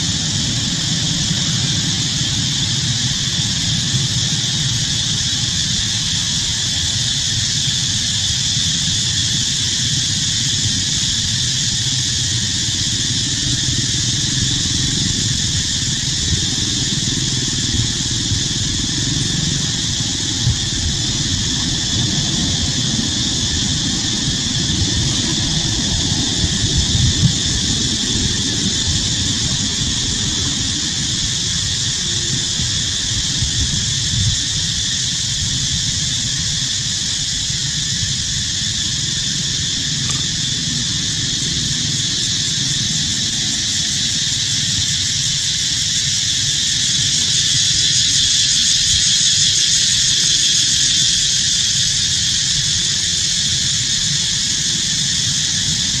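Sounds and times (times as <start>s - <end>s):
insect chorus drone: 0.0s - 56.0s.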